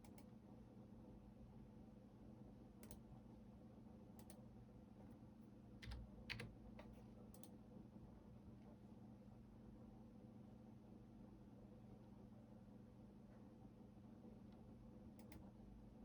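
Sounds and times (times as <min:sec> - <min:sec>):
faint steady hum: 0:00.0 - 0:16.0
keyboard keystrokes: 0:05.8 - 0:07.5.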